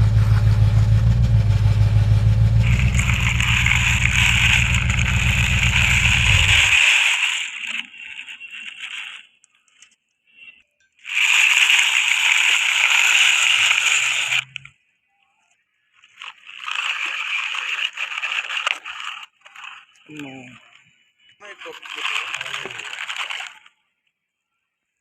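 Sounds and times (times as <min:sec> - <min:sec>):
engine low throb: 0:00.0 - 0:06.8
hissing splashing noise: 0:02.6 - 0:07.9.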